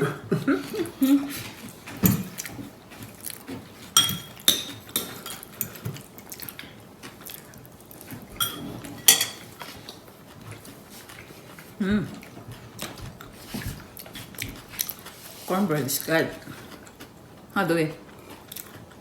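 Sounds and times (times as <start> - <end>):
cutlery clinking against plates: 1.9 - 2.6, 4.0 - 6.0, 8.4 - 9.8.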